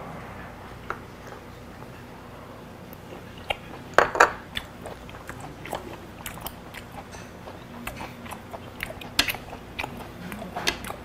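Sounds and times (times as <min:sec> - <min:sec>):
person chewing food: 0:02.8 - 0:11.0
wet mouth clicks and smacks: 0:04.5 - 0:11.0.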